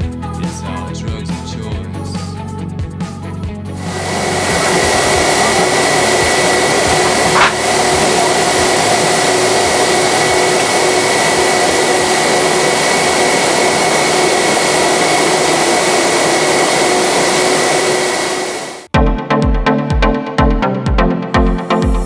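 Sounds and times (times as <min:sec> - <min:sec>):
jet engine noise inside aircraft: 0:03.8 - 0:18.9.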